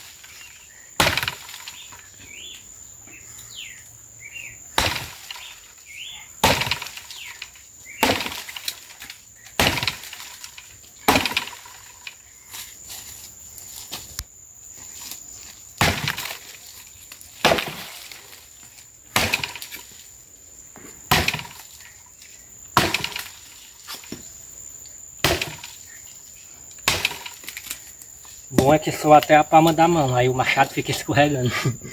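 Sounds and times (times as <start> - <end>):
axe chopping wood: 1.0 - 1.9, 4.7 - 5.5, 6.4 - 7.3, 8.0 - 8.9, 9.6 - 10.5, 11.1 - 11.8, 15.8 - 16.6, 17.4 - 18.3, 19.1 - 19.8, 21.1 - 21.7, 22.8 - 23.4, 25.2 - 25.8, 26.8 - 27.8, 28.5 - 29.8.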